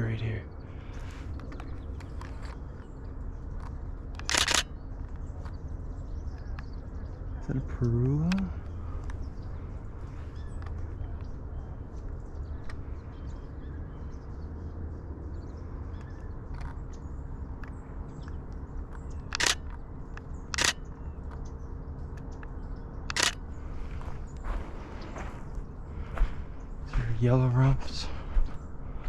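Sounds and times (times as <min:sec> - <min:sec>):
low outdoor background: 0:00.0 - 0:29.0
camera shutter bursts: 0:04.2 - 0:04.7, 0:19.3 - 0:19.8, 0:20.6 - 0:20.8, 0:23.1 - 0:23.4.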